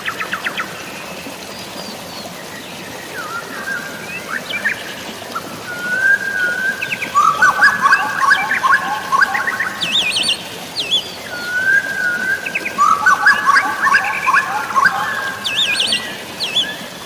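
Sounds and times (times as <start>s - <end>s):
hiss of rain: 0.0s - 17.0s
songbirds chirping and whistling: 5.6s - 17.0s.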